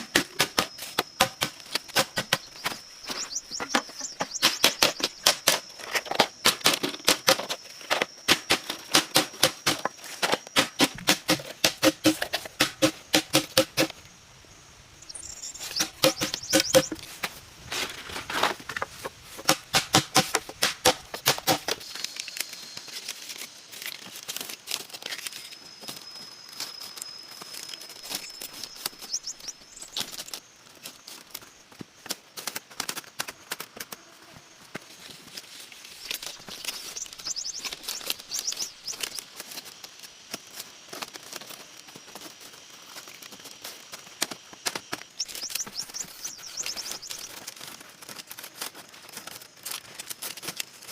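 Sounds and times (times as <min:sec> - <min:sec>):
crackling and rustling: 0:15.1 - 0:50.9.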